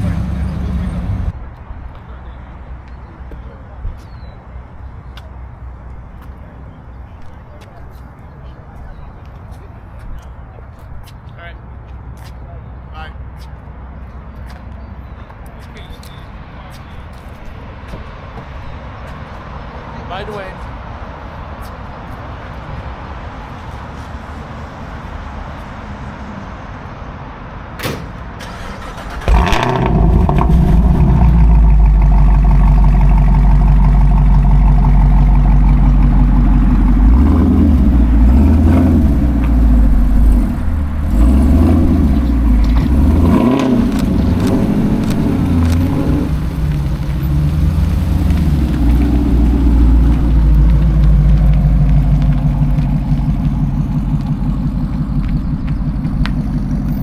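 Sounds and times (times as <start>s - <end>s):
vehicle engine starting and revving: 0.0s - 1.3s, 28.4s - 57.0s.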